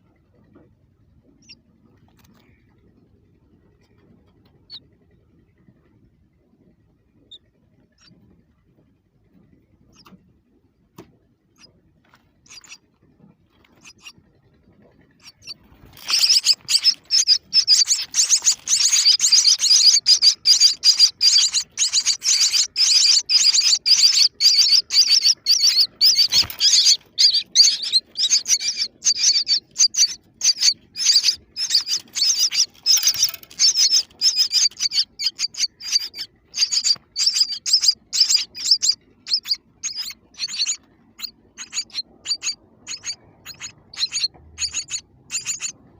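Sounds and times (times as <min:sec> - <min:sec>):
baby birds chirping: 0:12.4 - 0:12.8, 0:13.6 - 0:14.2, 0:15.2 - 0:45.8.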